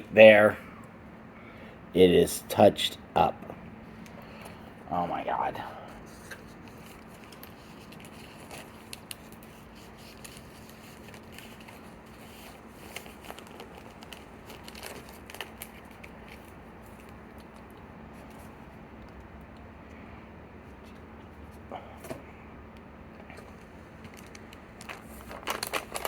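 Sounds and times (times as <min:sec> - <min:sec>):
steady low hum: 0:00.0 - 0:26.0
paper and plastic rustling: 0:05.9 - 0:19.2, 0:23.2 - 0:26.0.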